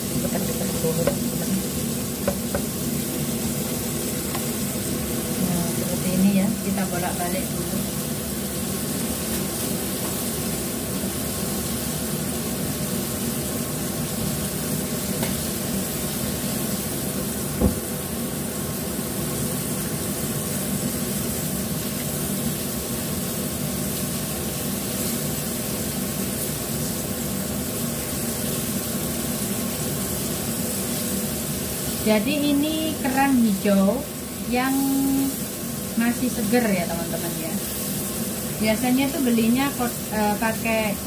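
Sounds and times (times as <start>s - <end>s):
mussels sizzling in oil: 0.0s - 41.0s
short knock: 17.6s - 17.8s.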